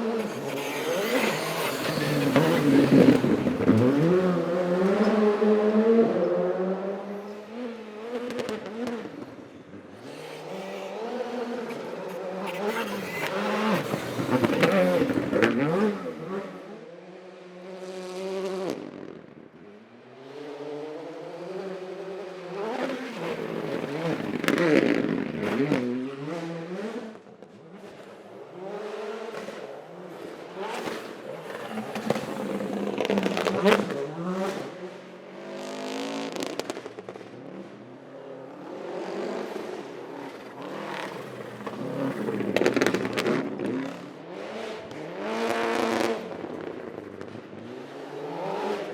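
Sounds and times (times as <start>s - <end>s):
car engine revving hard: 0.0s - 7.2s, 40.6s - 46.6s.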